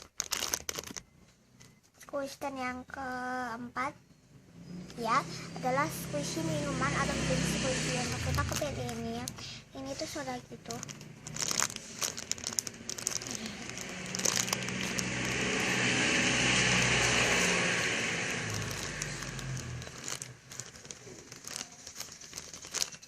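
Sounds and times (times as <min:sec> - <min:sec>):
plastic crinkling and crackling: 0:00.0 - 0:01.8, 0:08.2 - 0:23.0
rustling noise: 0:10.0 - 0:23.0.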